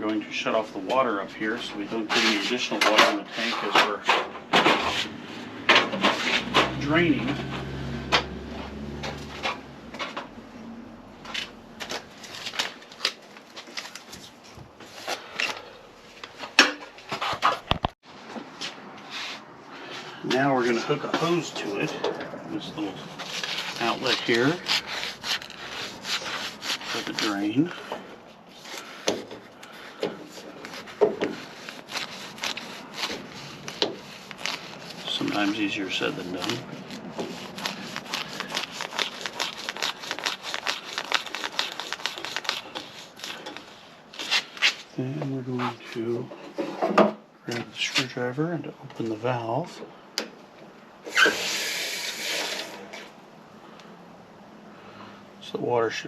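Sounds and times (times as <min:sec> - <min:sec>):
low hum: 0:05.2 - 0:12.8.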